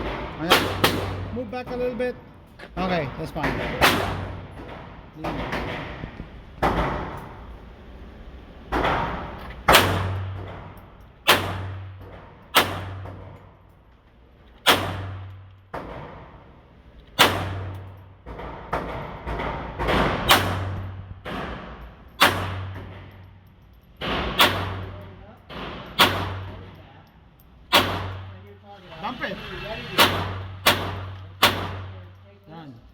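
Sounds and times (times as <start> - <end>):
pistol shots with echo: 0.0 - 1.4, 3.6 - 4.6, 9.7 - 10.4, 11.3 - 11.9, 12.5 - 13.1, 14.6 - 15.3, 17.2 - 17.9, 19.8 - 22.8, 24.0 - 25.0, 25.6 - 26.6, 27.7 - 28.4, 30.0 - 32.0.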